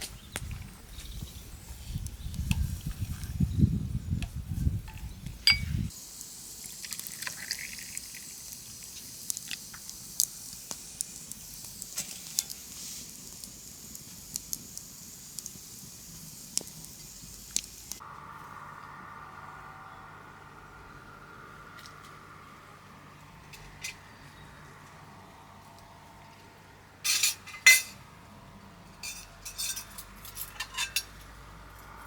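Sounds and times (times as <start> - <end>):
meat sizzling in hot oil: 5.9 - 18.0.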